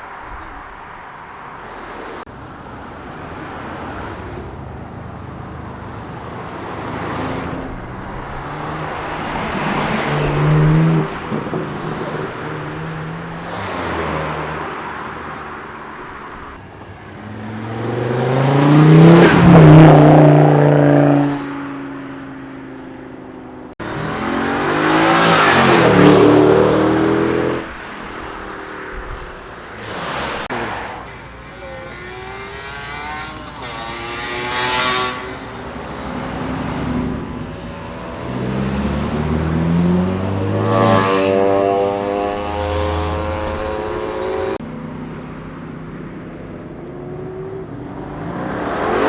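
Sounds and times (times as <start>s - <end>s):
cars accelerating past: 6.3s - 22.3s, 23.7s - 44.6s, 47.0s - 49.0s.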